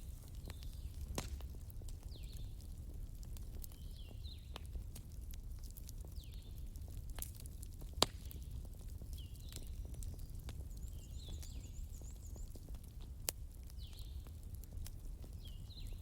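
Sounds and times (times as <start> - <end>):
wood fire crackling: 0.0 - 16.0
loud pop of burning wood: 0.3 - 2.4, 7.2 - 8.5.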